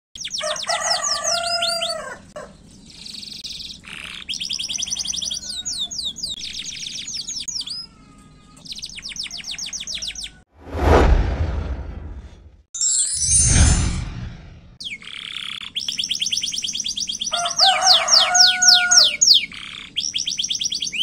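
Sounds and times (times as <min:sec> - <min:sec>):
canary singing trills: 0:00.2 - 0:10.4, 0:14.8 - 0:21.0.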